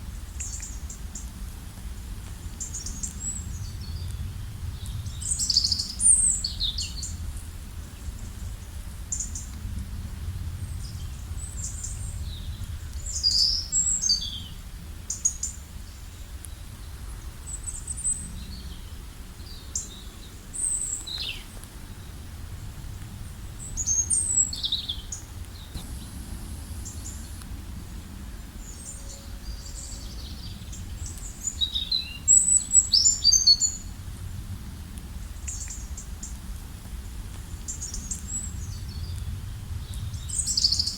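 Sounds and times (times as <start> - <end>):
songbirds chirping: 10.3 - 22.4, 23.2 - 34.0
low background rumble: 19.4 - 31.6.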